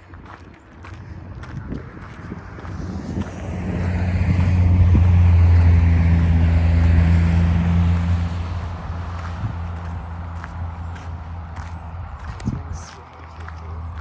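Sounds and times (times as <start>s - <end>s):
vehicle engine hum: 0.0s - 14.0s.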